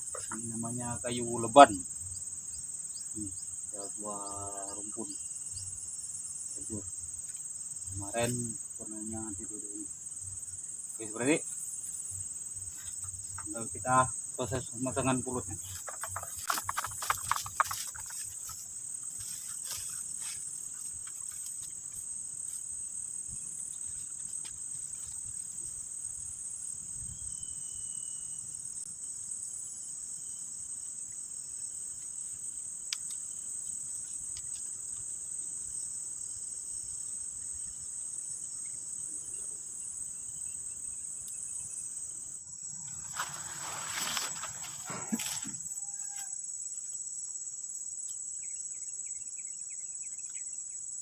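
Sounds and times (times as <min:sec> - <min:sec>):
insect chorus drone: 0:00.0 - 0:51.0
faint clicks and rustles: 0:15.5 - 0:22.6.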